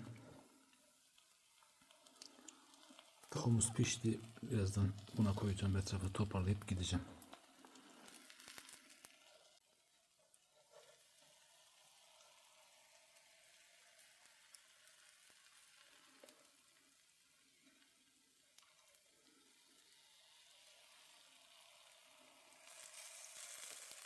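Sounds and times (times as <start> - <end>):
embers sizzling and crackling: 0.0 - 24.0
small ticks: 0.7 - 3.3.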